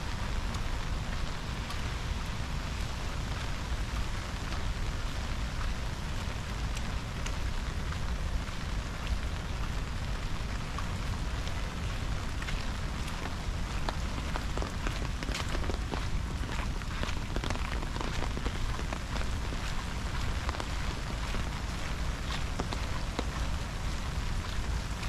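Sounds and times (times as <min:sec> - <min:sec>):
rain hissing: 0:00.0 - 0:25.0
sharp raindrop ticks: 0:00.1 - 0:25.0.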